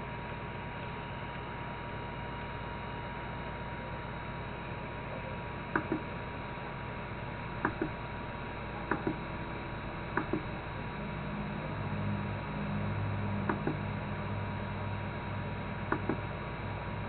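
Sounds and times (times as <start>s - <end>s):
steady electrical hum: 0.0s - 17.0s
solenoid clicking in pairs: 5.8s - 6.0s, 7.6s - 8.0s, 8.8s - 9.2s, 10.1s - 10.5s, 15.9s - 16.2s.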